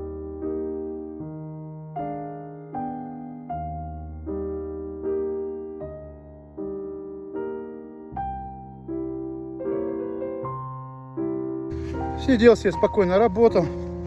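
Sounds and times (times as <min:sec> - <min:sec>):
electric piano chords: 0:00.0 - 0:14.0
low bass line: 0:11.7 - 0:14.0.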